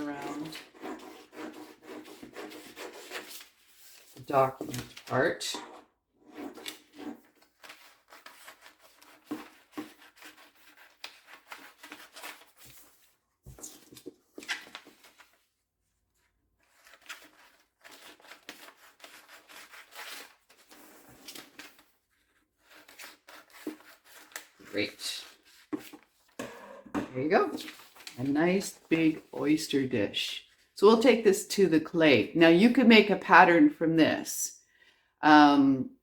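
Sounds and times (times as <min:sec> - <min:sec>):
paper rustling: 0:00.0 - 0:05.4, 0:06.3 - 0:15.6, 0:16.2 - 0:26.5, 0:27.3 - 0:29.6
scissors snipping paper: 0:16.8 - 0:21.8.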